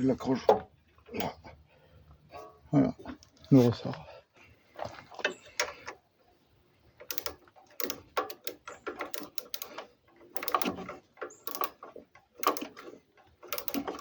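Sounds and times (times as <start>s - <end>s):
metal parts and tools clicking: 7.0s - 14.0s.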